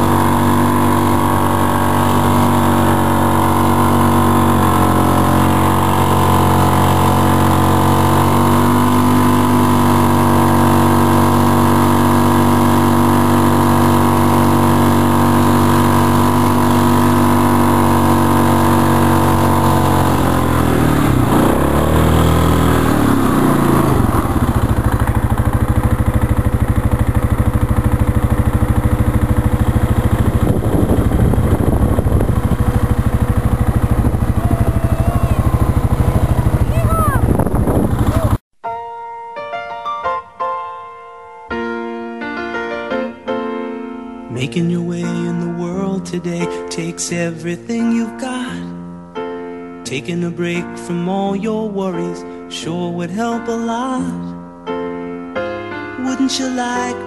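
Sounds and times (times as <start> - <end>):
small engine running: 0.0 - 38.4.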